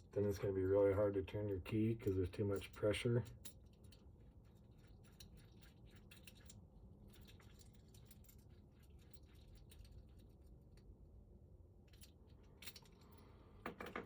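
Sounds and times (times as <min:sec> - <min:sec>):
metal lock parts clicking: 0:11.8 - 0:14.0.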